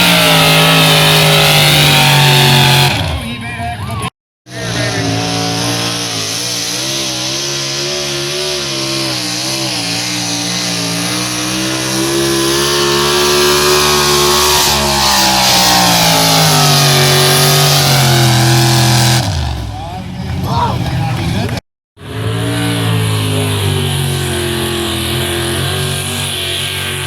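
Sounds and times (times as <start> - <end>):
engine at full throttle: 0.0 - 27.0.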